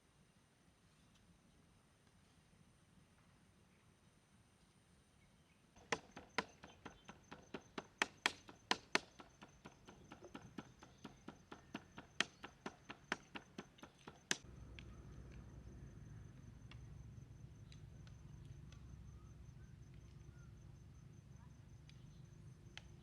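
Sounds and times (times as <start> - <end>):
chopping knocks: 5.8 - 14.4
steady low rumble: 14.4 - 21.9.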